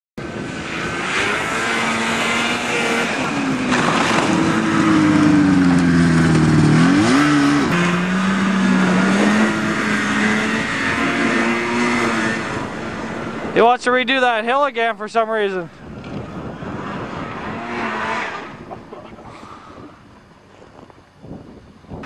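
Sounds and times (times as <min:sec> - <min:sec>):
off-road vehicle engine revving: 0:00.2 - 0:13.8, 0:16.0 - 0:19.6.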